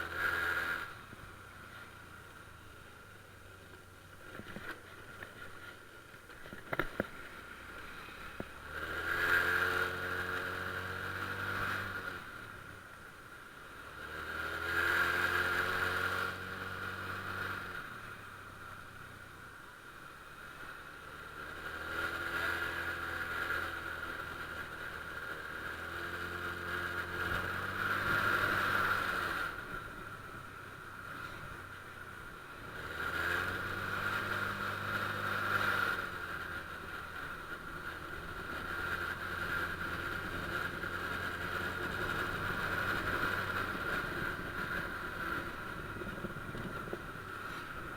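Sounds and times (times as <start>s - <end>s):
scooter engine accelerating: 4.2s - 12.8s, 13.7s - 18.6s, 20.5s - 47.9s.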